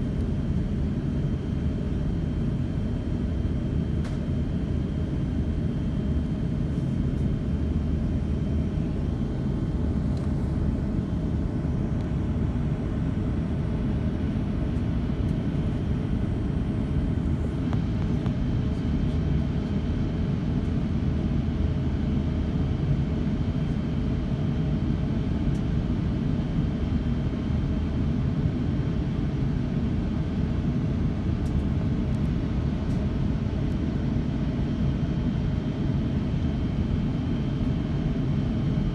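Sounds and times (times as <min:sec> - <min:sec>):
airliner cabin rumble: 0:00.0 - 0:20.8.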